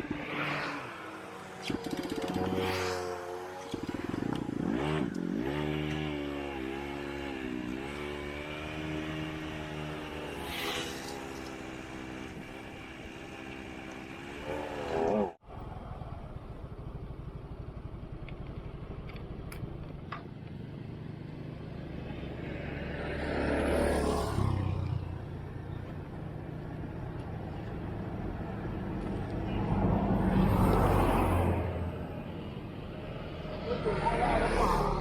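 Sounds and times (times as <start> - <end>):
traffic engine hum: 0.0 - 35.0
vehicles passing by: 0.0 - 35.0.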